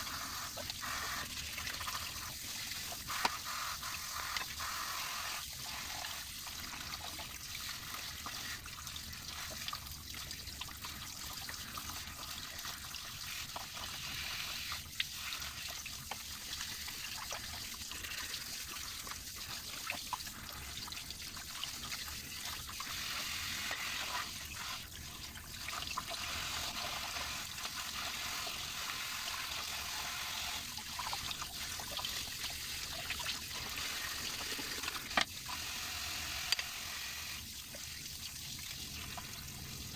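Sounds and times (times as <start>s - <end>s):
water running and trickling: 0.0s - 39.9s.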